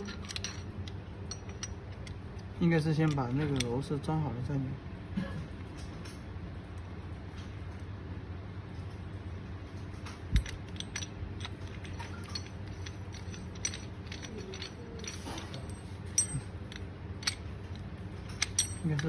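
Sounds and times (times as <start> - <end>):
small metal hardware clinking: 0.0 - 4.0, 10.0 - 19.0.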